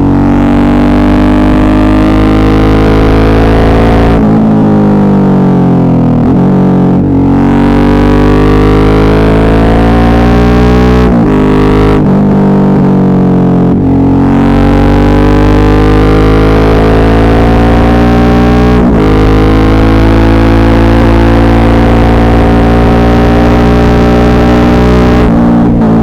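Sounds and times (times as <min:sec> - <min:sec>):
motorcycle engine running: 0:15.7 - 0:26.0.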